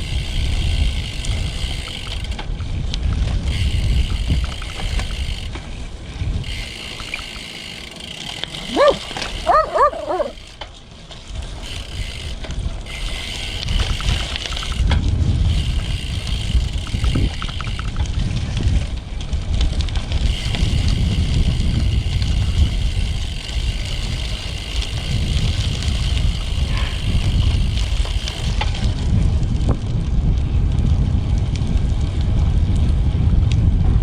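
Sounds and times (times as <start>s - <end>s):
wind rumbling on microphone: 0.0s - 7.8s, 8.4s - 34.0s
bike tyre and drivetrain hiss: 0.0s - 33.4s
short high yelps: 8.7s - 10.4s.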